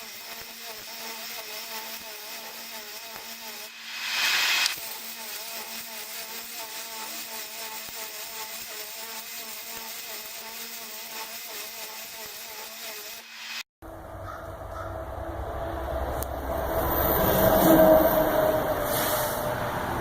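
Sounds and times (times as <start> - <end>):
brief rush of noise: 3.7 - 4.8
engine and hydraulics hum: 13.8 - 20.0.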